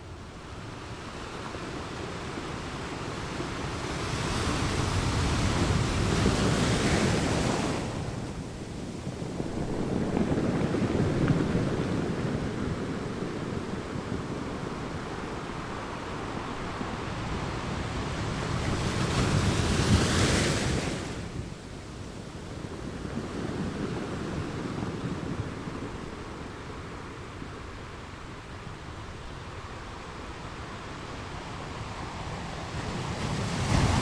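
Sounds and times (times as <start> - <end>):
ocean waves washing onto beach: 0.0 - 34.0.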